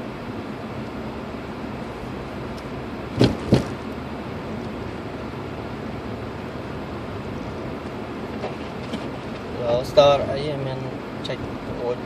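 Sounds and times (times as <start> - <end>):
car road and engine noise: 0.0 - 12.0
sharp knocks: 3.2 - 3.8.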